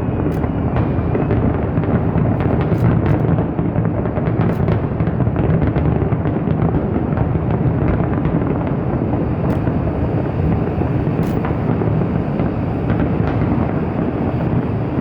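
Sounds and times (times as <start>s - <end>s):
fireworks bangs: 0.0s - 15.0s
sharp cracks: 0.1s - 5.7s, 9.4s - 10.3s, 11.1s - 11.9s.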